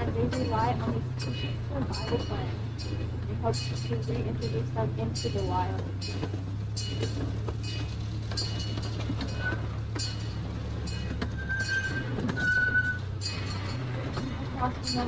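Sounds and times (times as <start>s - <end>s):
low engine drone: 0.0s - 15.0s
rails clicking under wheels: 0.0s - 15.0s
short high squeals: 6.8s - 14.0s.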